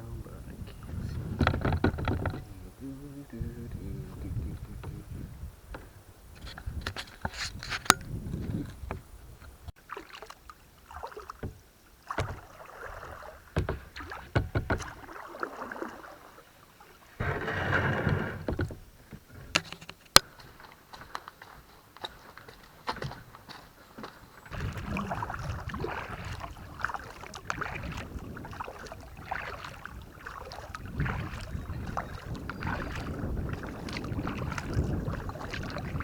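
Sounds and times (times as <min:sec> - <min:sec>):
paddle knocks: 0:00.0 - 0:09.0, 0:10.9 - 0:16.4, 0:17.2 - 0:36.0
paddle splashes and drips: 0:00.1 - 0:36.0
water wash: 0:09.7 - 0:19.2, 0:24.1 - 0:36.0.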